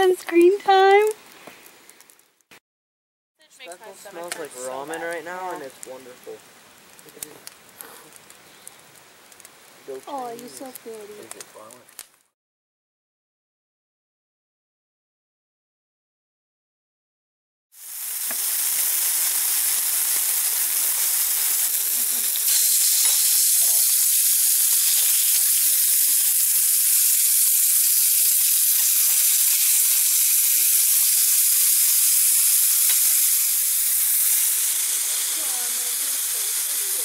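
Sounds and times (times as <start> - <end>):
meat patties sizzling on griddle: 3.7 - 11.8, 17.8 - 37.0.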